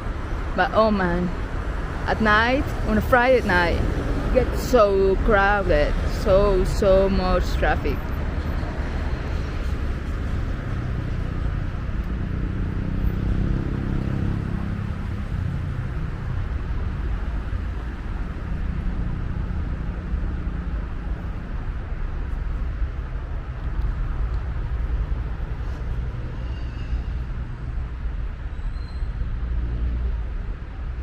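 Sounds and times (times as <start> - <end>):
motorway traffic: 0.0 - 31.0.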